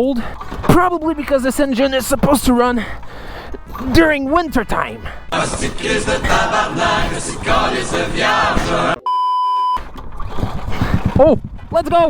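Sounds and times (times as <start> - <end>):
many voices singing: 5.3 - 9.0
high beep tone: 9.0 - 9.8.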